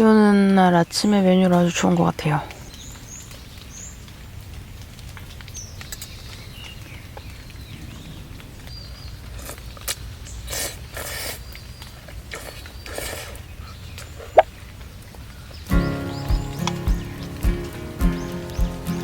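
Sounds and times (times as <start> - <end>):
low outdoor rumble: 2.6 - 10.3
faint bird chirps: 15.5 - 19.0.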